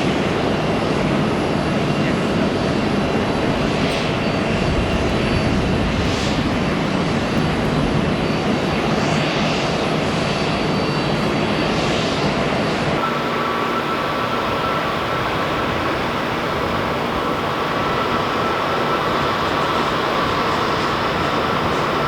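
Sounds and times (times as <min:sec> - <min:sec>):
jet engines running: 0:00.0 - 0:22.0.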